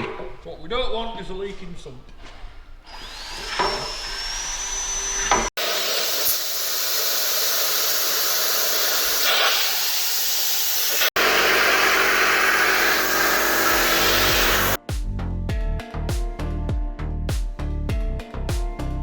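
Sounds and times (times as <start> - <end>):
compressed air hissing: 5.6 - 14.8.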